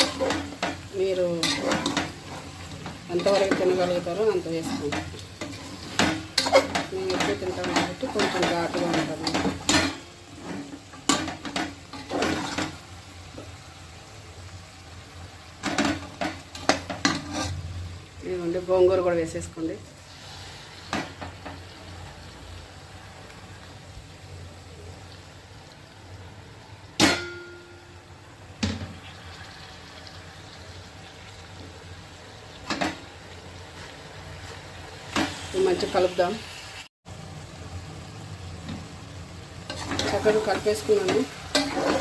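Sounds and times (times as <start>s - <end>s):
metal utensil clinking in a pot: 0.0s - 10.1s.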